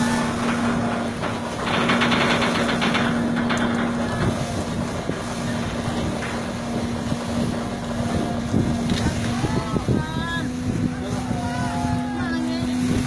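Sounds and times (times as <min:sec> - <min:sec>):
loud rasping burst: 0:00.0 - 0:09.3
boat motor humming: 0:00.0 - 0:13.0.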